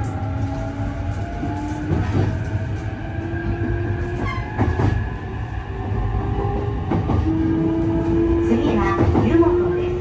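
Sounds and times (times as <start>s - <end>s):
train wheels rumbling on rail: 0.0s - 10.0s.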